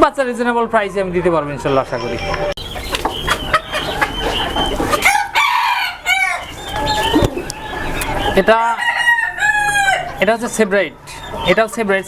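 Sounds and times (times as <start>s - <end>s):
hens clucking: 0.0s - 12.0s
roosters crowing: 2.6s - 12.0s.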